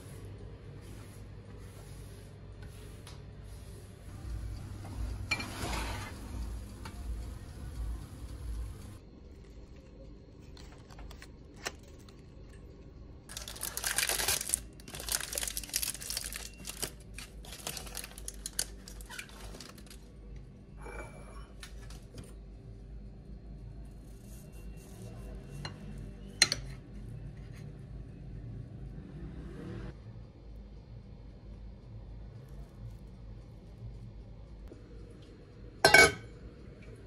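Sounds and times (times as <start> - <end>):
rustling and crinkling: 13.3 - 20.1.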